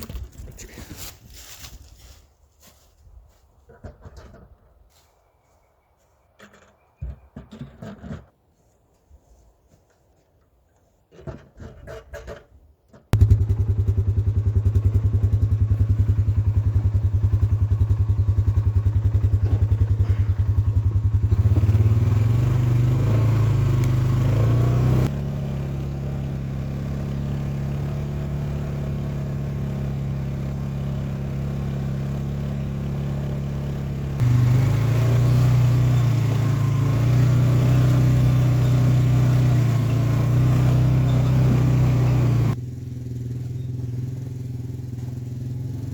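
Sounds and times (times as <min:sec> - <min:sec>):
small engine running: 0:13.2 - 0:45.9.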